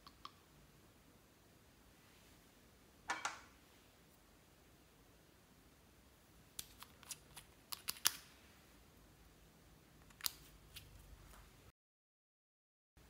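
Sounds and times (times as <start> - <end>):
sharp small clicks and snaps: 6.6 - 8.3, 10.0 - 11.0.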